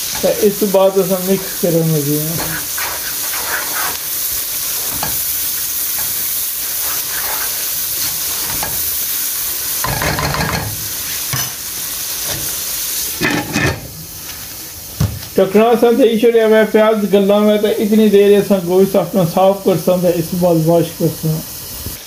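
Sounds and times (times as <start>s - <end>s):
wooden spoon stirring and scraping: 0.0s - 9.1s
vegetables sizzling in a wok: 0.0s - 22.0s
glass lid clattering on pan: 9.8s - 11.6s.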